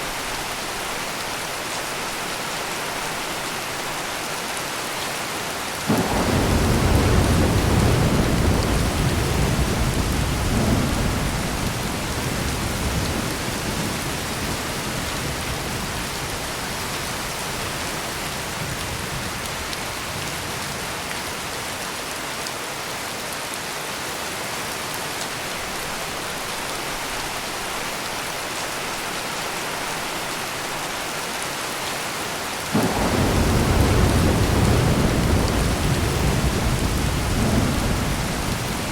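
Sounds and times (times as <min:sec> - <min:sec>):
heavy rain pouring: 0:00.0 - 0:38.9
thunder rumbling: 0:05.9 - 0:16.8, 0:32.8 - 0:38.9.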